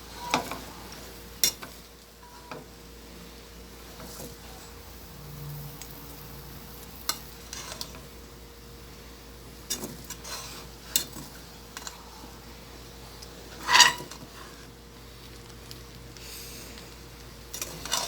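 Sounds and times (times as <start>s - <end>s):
spoon scraping a pot: 7.1s - 8.0s, 13.5s - 14.7s, 17.6s - 18.0s.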